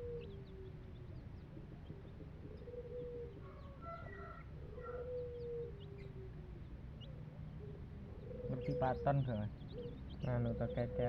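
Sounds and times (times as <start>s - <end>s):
birds calling in held notes: 0.0s - 11.0s.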